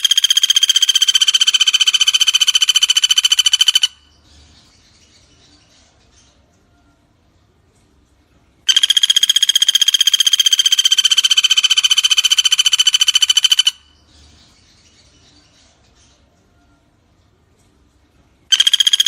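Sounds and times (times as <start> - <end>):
woodpecker rattling trill: 0.0 - 4.2, 8.7 - 14.0, 18.5 - 19.0
faint bird calls: 0.0 - 7.2.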